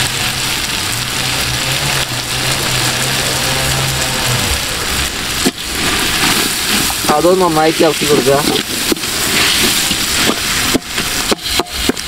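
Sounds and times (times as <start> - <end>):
low steady hum: 0.0 - 7.5
masala sizzling in a pot: 0.0 - 12.0.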